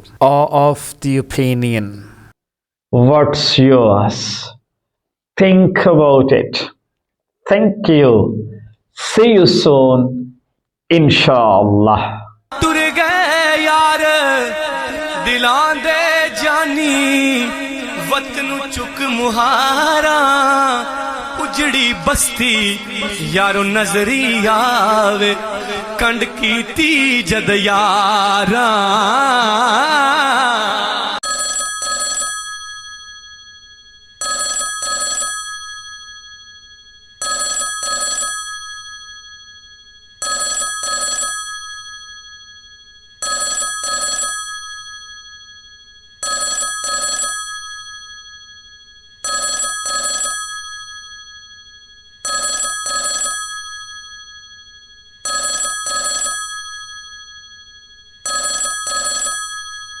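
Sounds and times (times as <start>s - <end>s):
bell-like ringing: 31.2s - 60.0s.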